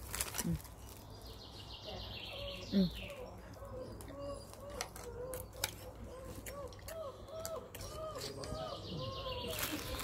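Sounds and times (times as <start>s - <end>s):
bird calling in arched notes: 2.1s - 10.0s.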